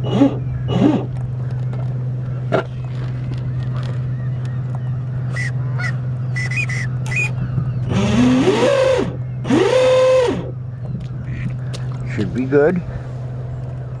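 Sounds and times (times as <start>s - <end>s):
geese honking: 0.0s - 14.0s
low steady hum: 0.0s - 14.0s
short high calls: 5.2s - 10.5s.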